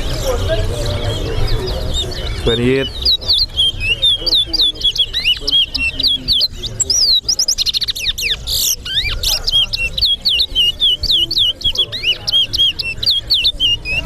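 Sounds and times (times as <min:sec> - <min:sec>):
finch singing whistled notes: 0:00.2 - 0:14.0.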